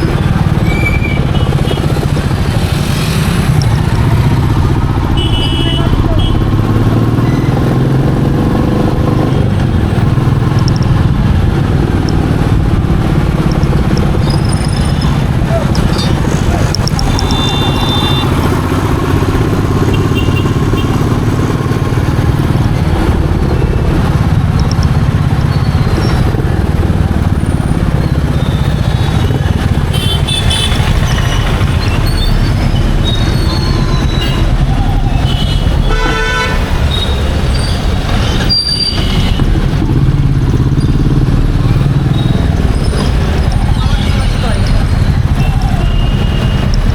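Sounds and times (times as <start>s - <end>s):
vehicle horns honking: 0.0s - 2.2s, 5.0s - 7.9s, 14.2s - 21.3s, 28.3s - 37.8s, 38.4s - 39.6s, 43.6s - 46.9s
motorcycle engine running: 0.0s - 46.9s
wind and road noise: 0.0s - 46.9s.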